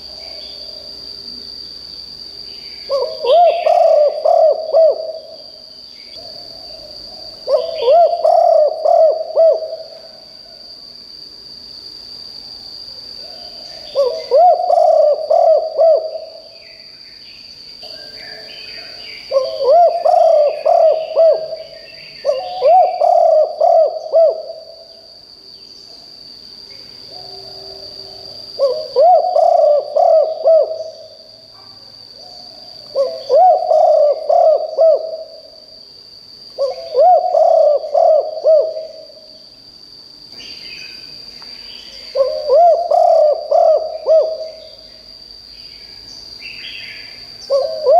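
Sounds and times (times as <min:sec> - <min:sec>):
dove cooing: 0:02.9 - 0:05.4, 0:06.2 - 0:10.2, 0:13.8 - 0:16.5, 0:18.3 - 0:24.9, 0:27.1 - 0:31.1, 0:32.9 - 0:35.5, 0:36.6 - 0:39.2, 0:42.1 - 0:44.7, 0:47.4 - 0:47.9.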